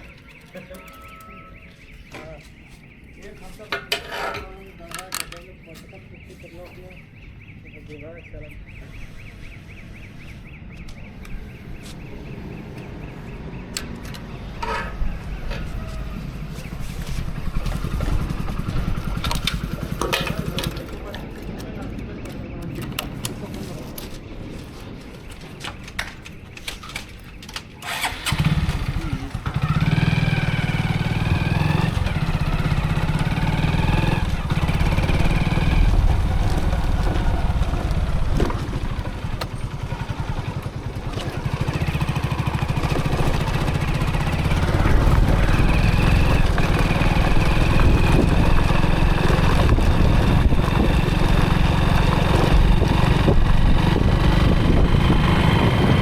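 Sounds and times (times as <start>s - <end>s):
motorcycle engine starting and running: 10.8s - 23.6s, 25.8s - 56.0s.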